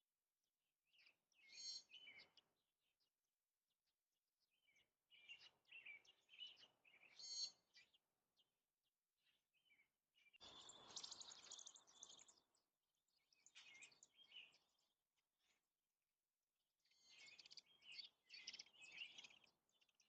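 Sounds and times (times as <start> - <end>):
faint bird chirps: 0.9 - 3.2, 4.4 - 15.8, 16.8 - 20.0.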